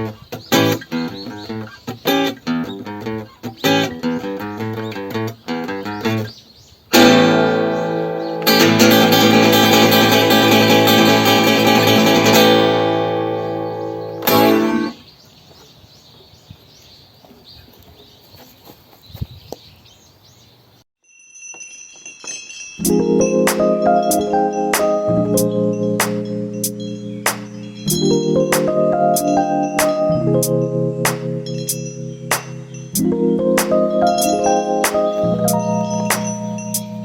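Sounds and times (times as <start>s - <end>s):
acoustic guitar playing: 0.0s - 6.3s, 6.9s - 15.0s, 22.8s - 37.0s.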